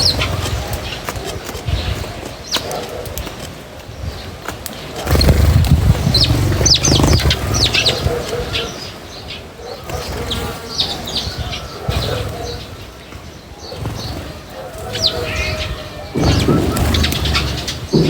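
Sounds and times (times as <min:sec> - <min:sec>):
wings flapping: 0:00.0 - 0:08.6, 0:13.7 - 0:18.0
birds chirping: 0:00.0 - 0:18.0.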